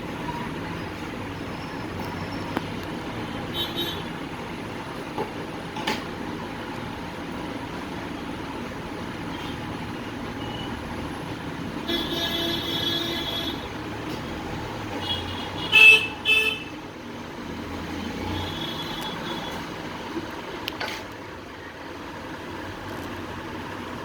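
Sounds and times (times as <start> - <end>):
street traffic noise: 0.0 - 24.0
vehicle horns honking: 3.5 - 4.1, 11.8 - 13.7, 15.0 - 16.8, 18.2 - 19.6.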